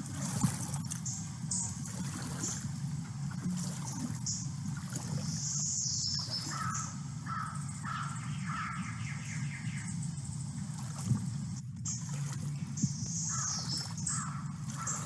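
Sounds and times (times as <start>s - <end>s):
steady low hum: 0.0s - 15.0s
bird calling harsh notes: 5.4s - 9.9s, 13.1s - 15.0s.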